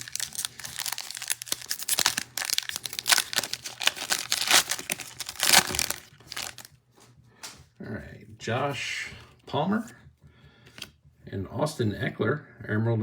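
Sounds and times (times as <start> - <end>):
wrapper being torn and crinkled: 0.0 - 6.7.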